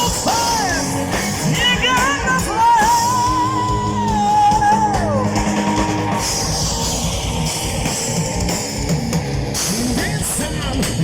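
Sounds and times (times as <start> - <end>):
distorted guitars: 0.0 - 11.0
drum kit: 0.0 - 11.0.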